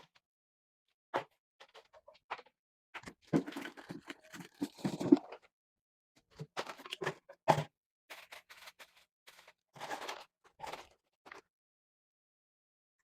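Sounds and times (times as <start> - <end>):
household objects rustling and knocking: 3.0 - 5.4.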